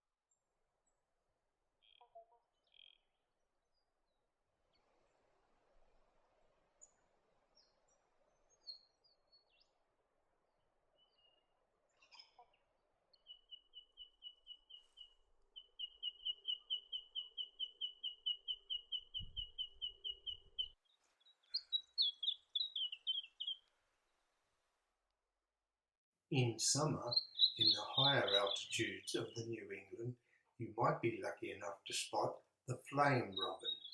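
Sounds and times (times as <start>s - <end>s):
songbird trilling: 13.2s - 23.6s, 26.4s - 29.8s, 32.9s - 33.9s.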